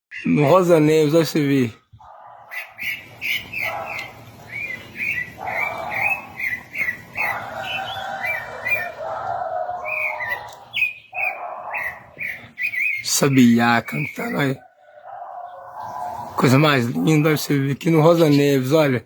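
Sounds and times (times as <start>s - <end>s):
thrush singing whistled notes: 2.0s - 14.7s.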